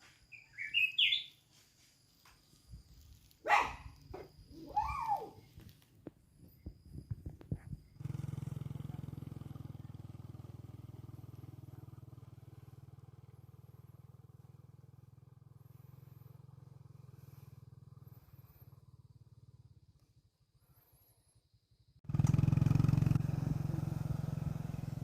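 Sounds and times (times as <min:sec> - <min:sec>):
small motorcycle engine running: 0:06.9 - 0:21.1, 0:22.0 - 0:25.0.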